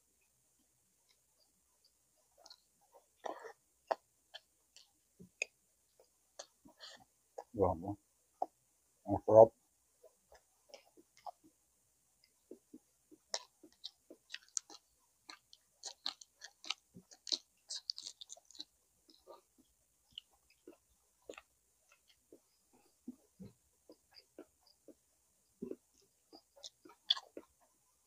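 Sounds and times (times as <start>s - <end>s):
person chewing and lip-smacking: 2.4s - 6.7s, 10.3s - 11.5s, 12.2s - 27.7s.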